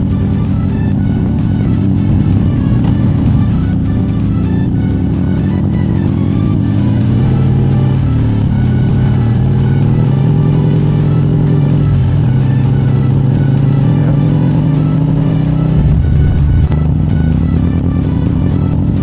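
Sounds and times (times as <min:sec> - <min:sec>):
motorcycle engine running: 0:15.8 - 0:16.8.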